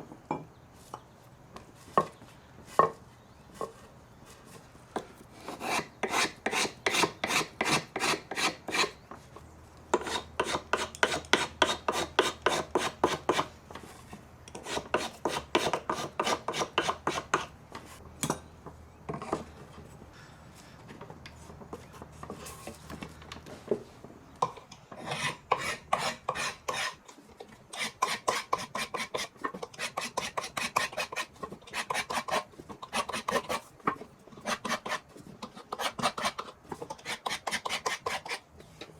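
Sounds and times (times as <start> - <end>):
hand rasp filing: 5.4 - 9.0, 10.0 - 13.5, 14.6 - 17.5, 24.9 - 27.0, 27.7 - 33.7, 34.4 - 38.4.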